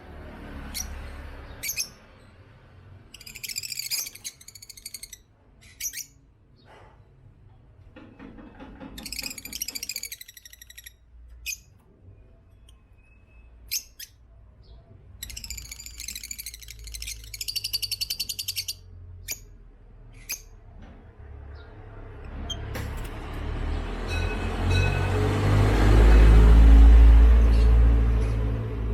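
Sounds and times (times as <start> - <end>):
sharp bird chirps: 3.1 - 6.2, 9.0 - 20.6
lovebirds chattering: 3.1 - 6.7, 13.7 - 20.6.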